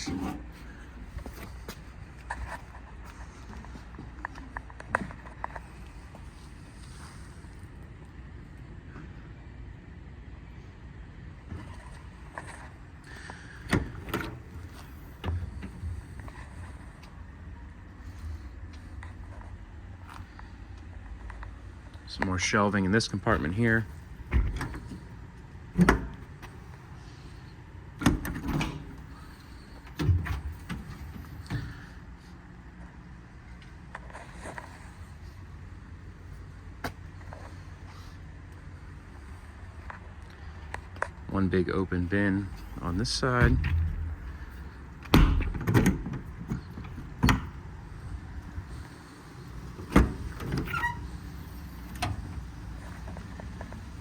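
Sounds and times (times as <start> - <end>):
metal doors clunking: 0.0 - 0.8, 24.1 - 26.8, 27.9 - 32.0, 42.4 - 54.0.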